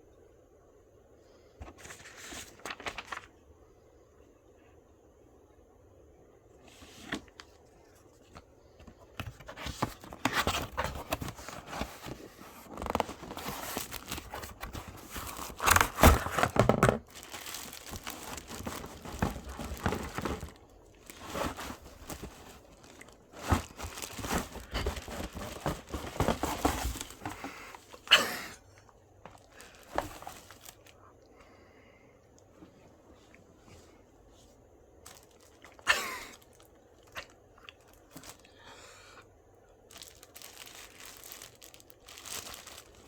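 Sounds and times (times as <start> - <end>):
packaging crinkling and tearing: 1.7 - 3.3, 9.1 - 28.2, 29.3 - 31.0, 35.0 - 38.5, 39.9 - 43.0.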